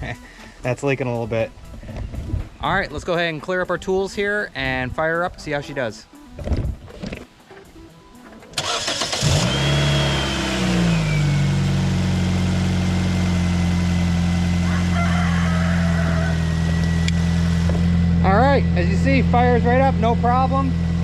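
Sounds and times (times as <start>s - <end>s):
starter motor cranking: 8.5s - 11.4s
car engine revving and idling: 8.6s - 21.0s.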